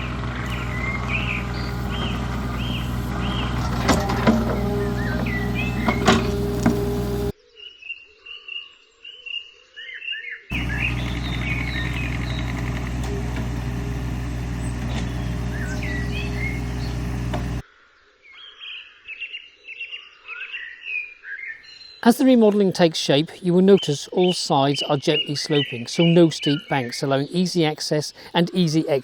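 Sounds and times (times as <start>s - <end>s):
digger diesel engine running: 0.0s - 7.3s, 10.5s - 17.6s
songbirds chirping and singing: 0.0s - 7.3s, 10.5s - 17.6s.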